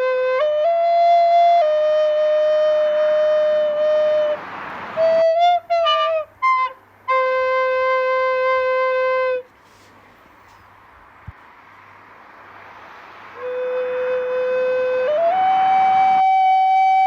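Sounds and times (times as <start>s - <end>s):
flute playing slowly: 0.0s - 9.5s, 13.4s - 17.0s.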